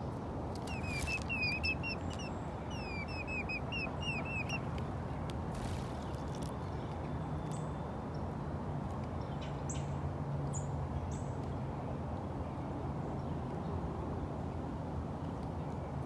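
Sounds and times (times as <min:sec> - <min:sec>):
high bird chirps: 0:00.6 - 0:04.7.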